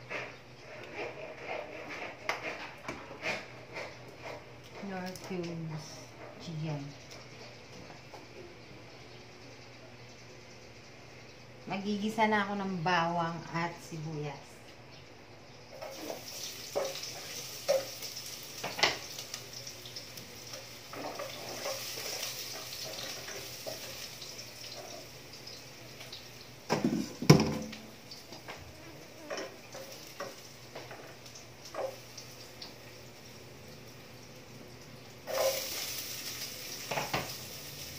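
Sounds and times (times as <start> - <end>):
spatula scraping a pot: 0.0 - 4.5, 20.9 - 23.9
garlic and onion sizzling in oil: 15.7 - 37.9.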